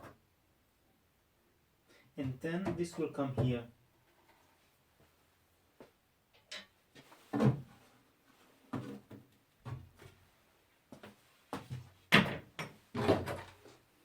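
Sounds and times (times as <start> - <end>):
wooden knocks and clunks: 2.2 - 3.6, 7.3 - 7.7, 11.5 - 13.6.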